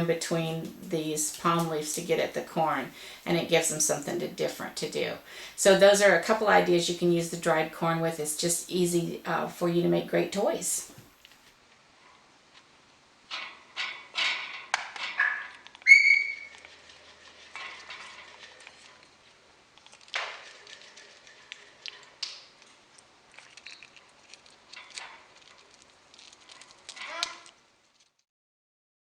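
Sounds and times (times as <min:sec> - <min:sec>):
loud clear bird whistle: 0:15.2 - 0:16.5
bird chattering: 0:15.2 - 0:16.6.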